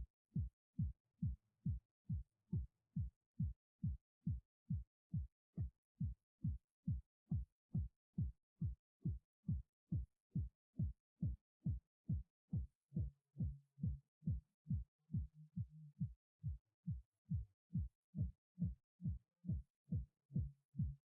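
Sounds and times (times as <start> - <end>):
electronic kick drum beat: 0.0 - 21.0.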